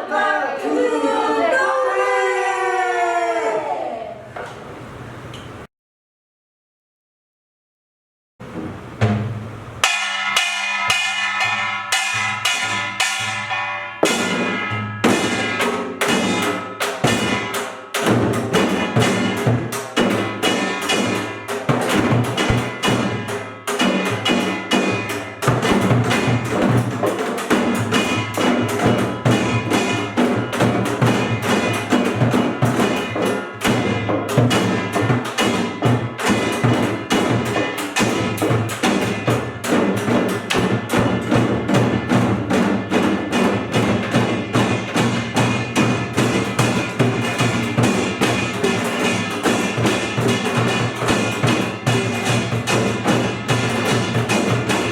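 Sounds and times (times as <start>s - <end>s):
percussion ensemble drumming: 8.4s - 54.9s
small gong strokes: 9.8s - 17.5s.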